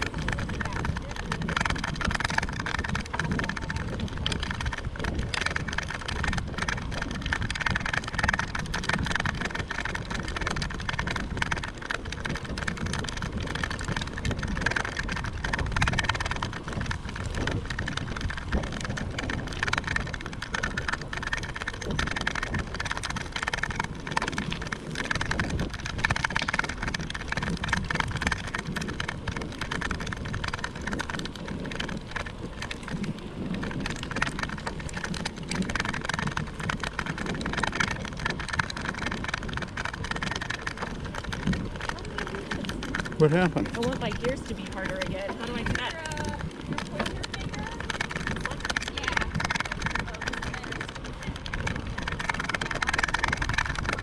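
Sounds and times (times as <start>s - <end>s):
bicycle crackle and rattle: 0.0s - 54.0s
wind on microphone: 0.0s - 54.0s.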